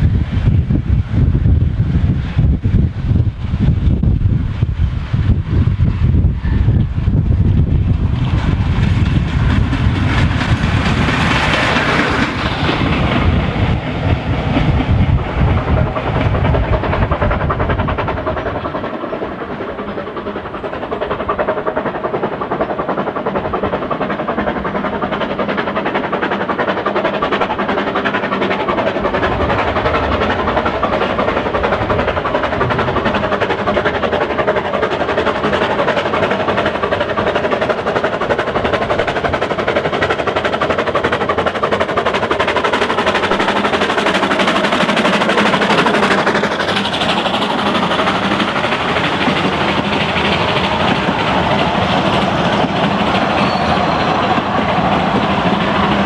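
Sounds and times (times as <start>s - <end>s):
train heavy low rumble: 0.0s - 56.0s
train wheels on rail: 0.0s - 56.0s.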